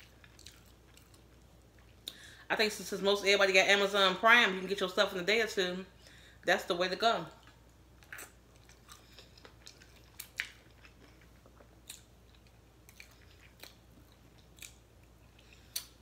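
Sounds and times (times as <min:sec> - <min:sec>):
crunchy chewing: 0:00.0 - 0:02.0, 0:07.4 - 0:16.0.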